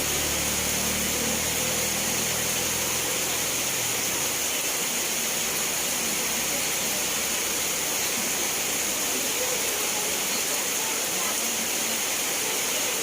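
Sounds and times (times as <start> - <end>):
low engine hum: 0.0 - 9.0
steady rain falling: 0.0 - 13.0.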